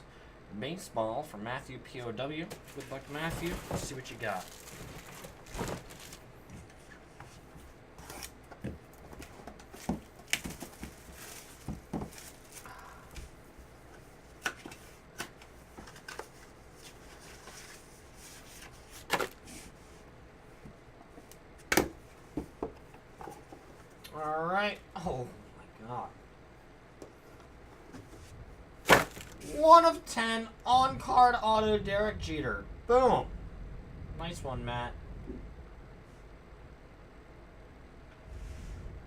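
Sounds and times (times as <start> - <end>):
cardboard and plastic rustling: 2.4 - 13.4, 14.3 - 19.8, 27.8 - 29.5.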